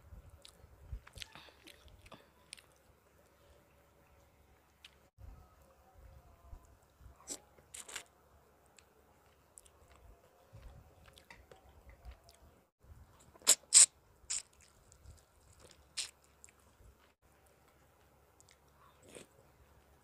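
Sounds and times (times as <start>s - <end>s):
crackly mouth sounds: 0.4s - 2.9s, 13.2s - 17.2s
chewing chicken: 0.4s - 3.4s, 8.8s - 12.5s, 14.3s - 17.8s.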